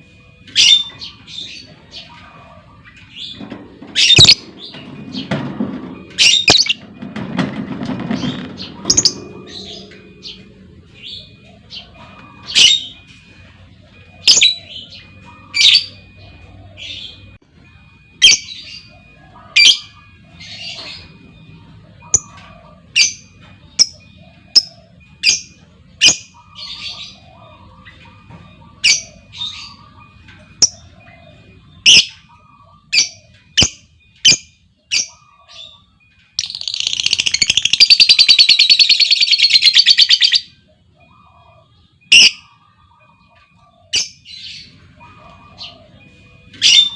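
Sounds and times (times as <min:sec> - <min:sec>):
bird chirps and rattling trill: 0:02.9 - 0:13.0, 0:33.0 - 0:40.5.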